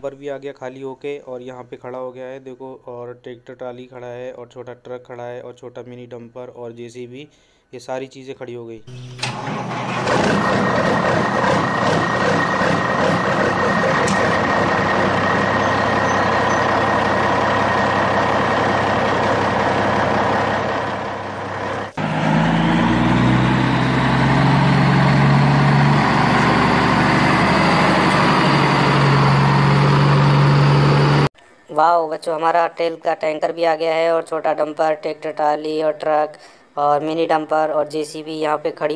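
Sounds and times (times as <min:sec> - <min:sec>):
heavy truck engine running: 0:09.0 - 0:31.3
low idling hum: 0:09.2 - 0:31.3.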